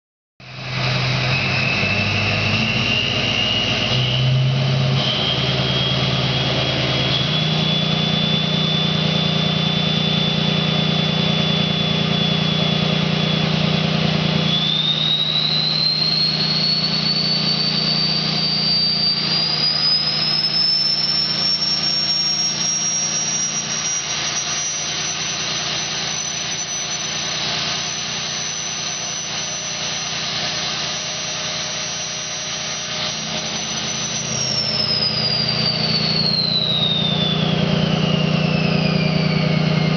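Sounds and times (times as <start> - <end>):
diesel engine running: 0.4 - 39.9
turbo whistle rising in pitch: 0.4 - 39.9.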